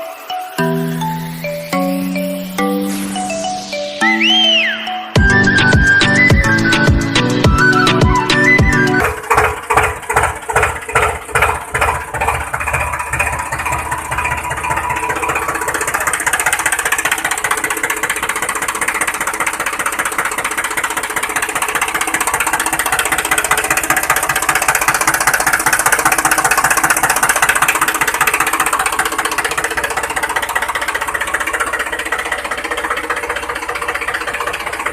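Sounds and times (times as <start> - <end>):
music: 0.0 - 9.0
tractor engine chugging: 0.0 - 34.9.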